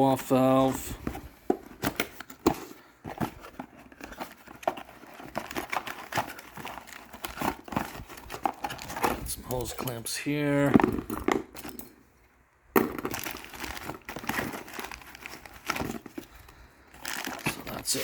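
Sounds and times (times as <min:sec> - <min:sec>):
packaging crinkling: 0:01.8 - 0:10.1, 0:12.8 - 0:18.0.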